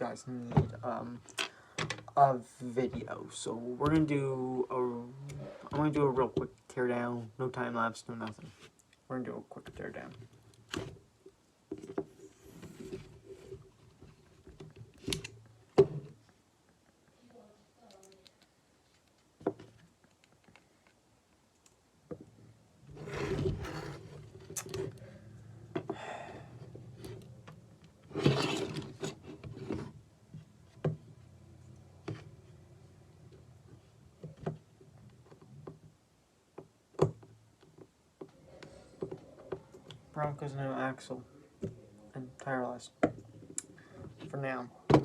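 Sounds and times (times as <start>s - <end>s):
plastic parts rubbing and clattering: 26.7s - 30.0s.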